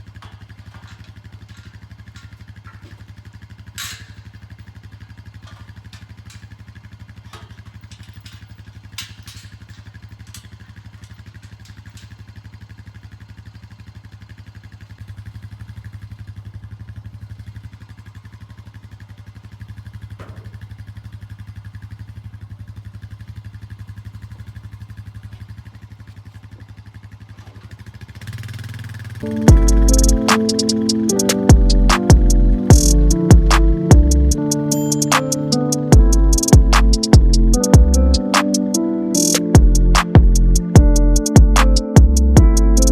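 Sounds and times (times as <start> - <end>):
engine running steadily: 0.0 - 42.9
sharp clicks and clatters: 5.4 - 12.4.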